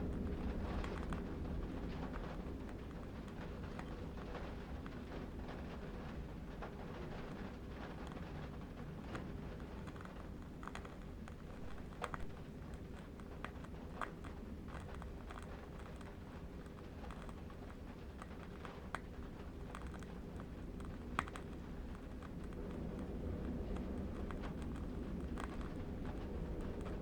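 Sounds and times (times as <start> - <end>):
light clicks and crackles: 0.0 - 27.0
low wind rumble: 0.0 - 27.0.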